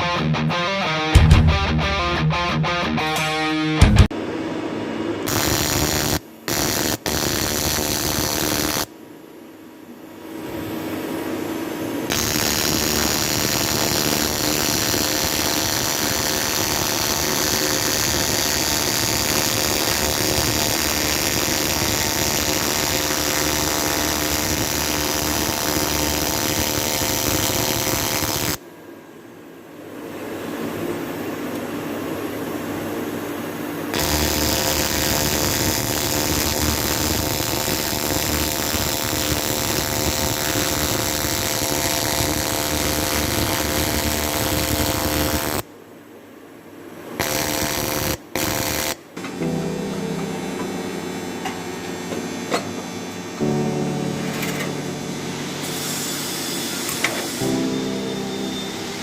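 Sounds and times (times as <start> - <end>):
welding arc humming: 5.2 - 8.9, 12.1 - 28.6, 33.9 - 45.6, 47.2 - 49.8, 50.6 - 59.0.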